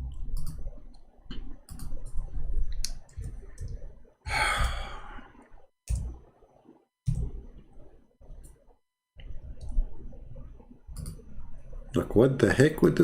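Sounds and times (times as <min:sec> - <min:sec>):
man sighing: 0:04.3 - 0:05.3.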